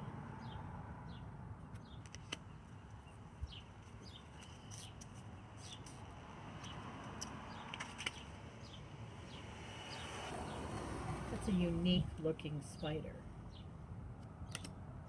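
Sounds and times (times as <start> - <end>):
small bird chirping: 0.4 - 6.0
playing cards being handled: 3.8 - 6.1, 7.1 - 8.3.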